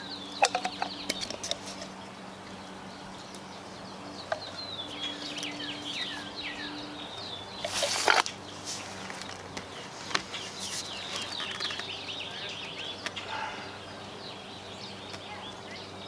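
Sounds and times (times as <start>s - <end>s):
small birds chirping: 0.0s - 16.0s
loud rustle: 7.6s - 12.0s.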